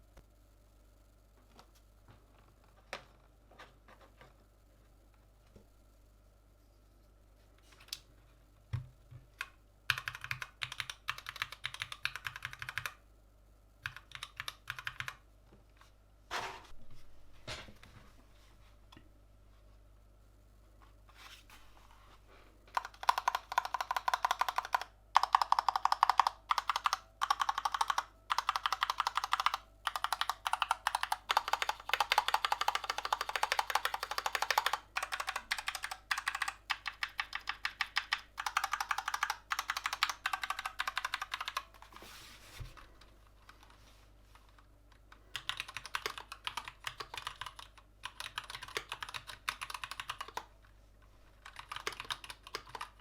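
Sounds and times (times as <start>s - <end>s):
fast mechanical keyboard typing: 9.4s - 13.0s, 13.8s - 15.2s, 22.7s - 41.8s, 45.1s - 50.5s, 51.4s - 53.0s.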